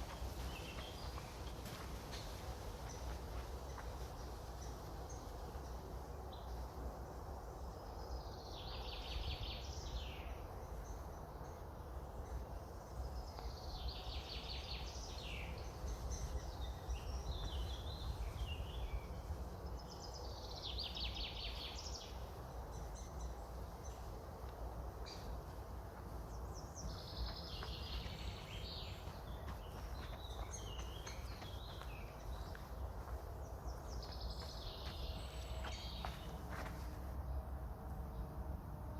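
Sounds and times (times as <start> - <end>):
low rumble of wind: 0.0 - 38.9
songbird singing with trill: 7.6 - 24.2, 24.9 - 36.6.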